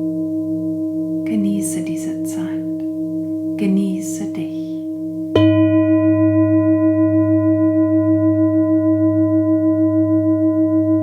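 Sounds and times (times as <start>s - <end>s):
singing bowl ringing: 0.0s - 1.4s, 2.1s - 11.0s.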